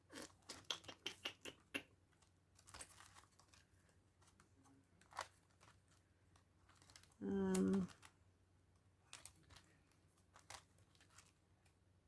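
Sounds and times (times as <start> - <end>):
paper envelopes rustling: 2.1 - 8.2, 9.0 - 11.8.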